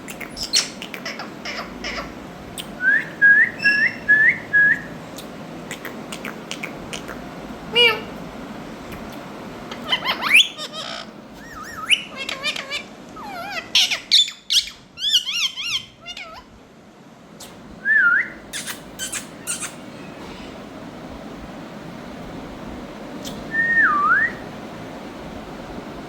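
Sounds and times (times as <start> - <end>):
parakeet warbling whistled calls: 3.0 - 4.9, 9.9 - 16.4.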